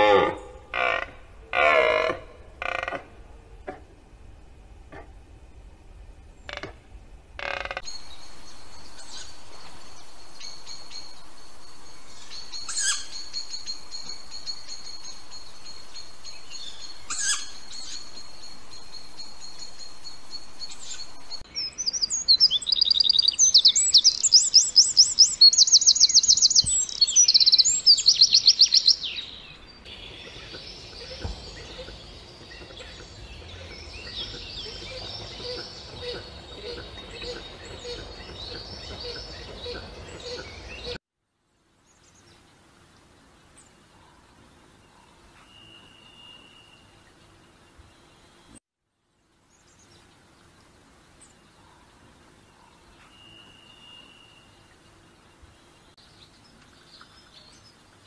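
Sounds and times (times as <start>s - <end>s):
birds chirping: 0.0s - 41.0s
faint high whine: 3.1s - 21.8s
soft bird chatter: 7.4s - 41.0s
bird trilling: 12.0s - 19.9s.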